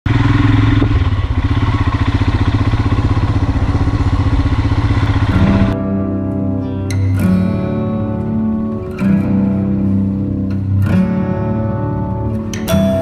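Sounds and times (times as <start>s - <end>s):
motorcycle engine thumping: 0.1s - 5.8s
acoustic guitar music: 4.7s - 13.0s.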